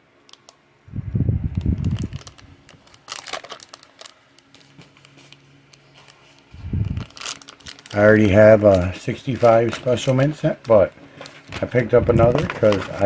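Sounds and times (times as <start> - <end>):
low rumbling handling noise: 0.9 - 2.9, 6.5 - 13.0
sharp crackles: 1.6 - 4.7, 6.7 - 13.0
packaging crinkling and rustling: 1.6 - 13.0.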